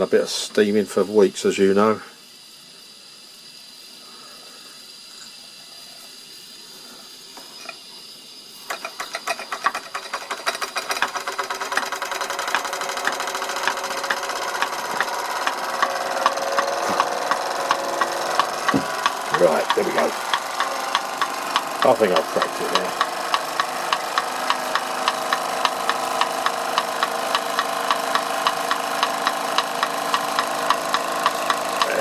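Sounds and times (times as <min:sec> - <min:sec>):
steam hissing: 0:00.0 - 0:32.0
toy steam engine clattering: 0:07.5 - 0:07.9, 0:08.6 - 0:32.0.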